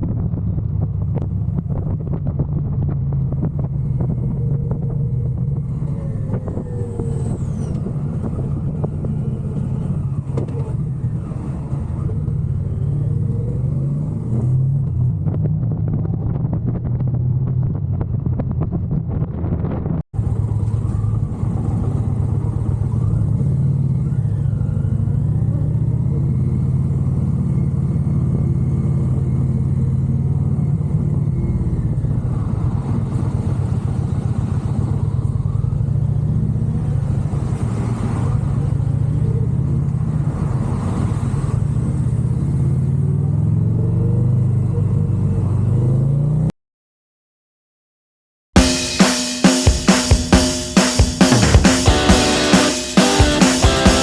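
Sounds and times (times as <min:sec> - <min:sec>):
motorcycle engine running: 0:00.0 - 0:07.2, 0:48.6 - 0:54.0
wind and road noise: 0:00.0 - 0:46.5.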